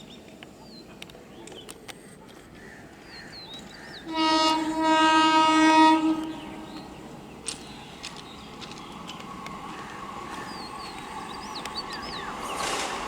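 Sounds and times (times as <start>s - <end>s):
train horn blast: 4.0s - 7.0s
small birds chirping faintly: 6.2s - 13.0s.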